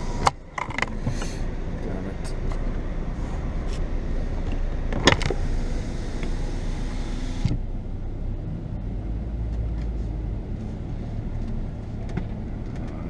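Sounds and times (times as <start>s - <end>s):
car engine idling: 0.0s - 13.0s
car wash hiss: 5.3s - 7.6s.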